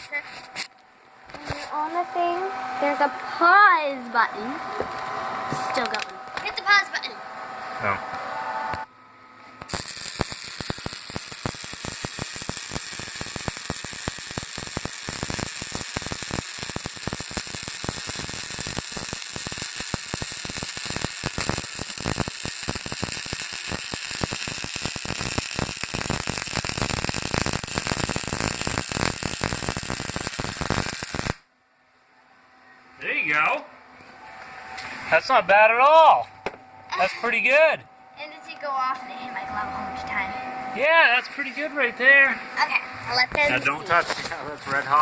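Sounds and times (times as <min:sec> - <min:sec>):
welding arc crackling: 0:05.5 - 0:06.8, 0:09.6 - 0:31.5, 0:43.1 - 0:45.0.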